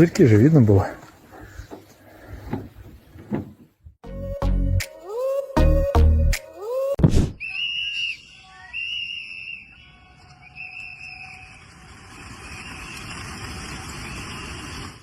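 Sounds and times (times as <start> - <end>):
music: 4.0 - 6.7
whistle held high notes: 4.9 - 11.6.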